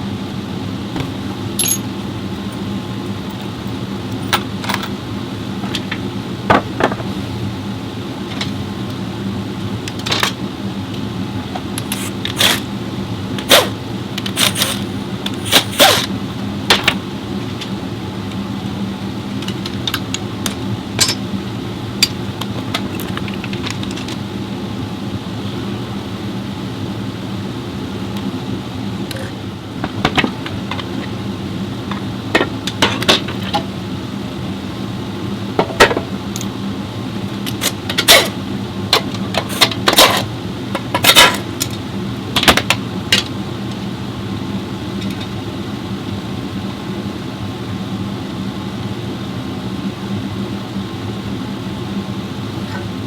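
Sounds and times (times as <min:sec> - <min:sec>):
low machine hum: 0:00.0 - 0:53.0
metal tools clinking on car parts: 0:01.5 - 0:02.6, 0:21.0 - 0:21.3.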